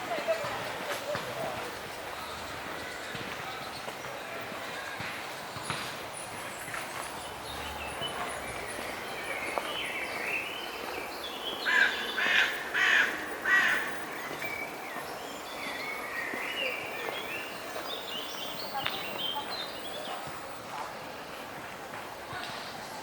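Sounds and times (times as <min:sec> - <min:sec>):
outdoor background hiss: 0:00.0 - 0:23.0
faint birdsong: 0:01.1 - 0:21.3
crow cawing: 0:11.7 - 0:13.9.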